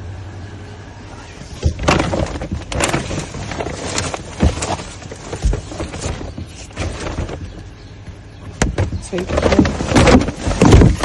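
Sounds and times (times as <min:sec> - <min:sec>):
dull thuds: 0:01.4 - 0:11.0
bags rustling and crackling: 0:01.5 - 0:07.9, 0:08.8 - 0:11.0.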